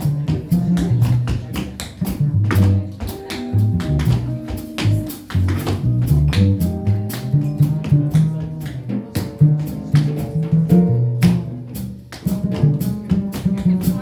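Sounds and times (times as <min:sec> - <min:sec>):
double bass held notes: 0:00.0 - 0:14.0
plucked guitar notes: 0:02.1 - 0:09.6.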